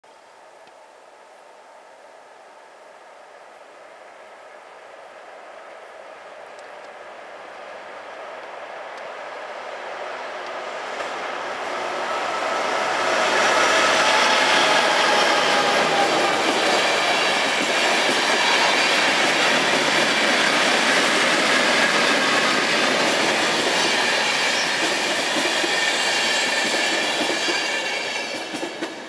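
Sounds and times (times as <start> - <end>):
train wheels clattering on rail: 10.4 - 29.0.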